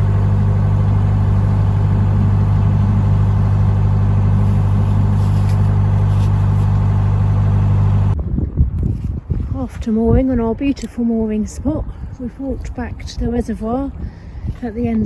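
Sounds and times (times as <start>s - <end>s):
boat diesel engine droning: 0.0s - 8.2s.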